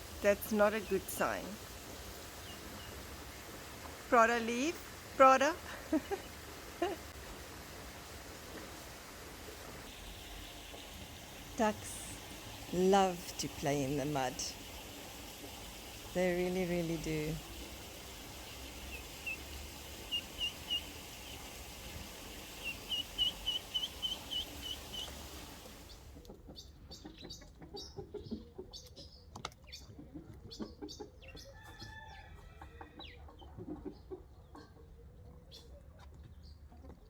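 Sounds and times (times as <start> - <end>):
steady hiss: 0.0 - 26.0
ducklings peeping: 2.3 - 3.0, 15.4 - 32.0, 33.0 - 37.0.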